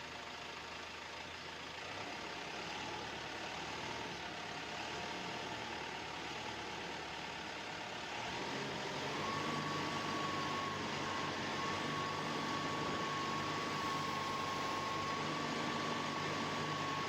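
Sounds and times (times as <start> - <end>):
machine hum: 9.0 - 17.0.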